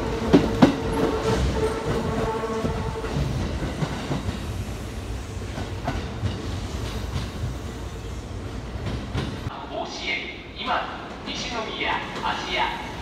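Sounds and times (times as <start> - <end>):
train wheels clacking over rails: 0.0 - 9.5
train low rumble: 0.0 - 9.6.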